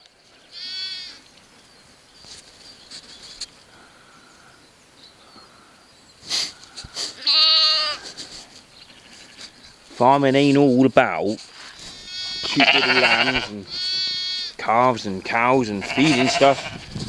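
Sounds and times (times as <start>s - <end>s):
lambs bleating: 0.5s - 1.2s, 7.2s - 8.0s, 8.8s - 9.6s, 11.8s - 14.6s, 15.7s - 17.0s.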